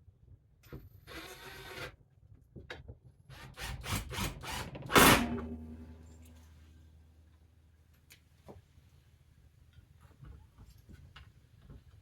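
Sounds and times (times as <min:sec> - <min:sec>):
low hum: 0:05.3 - 0:06.6.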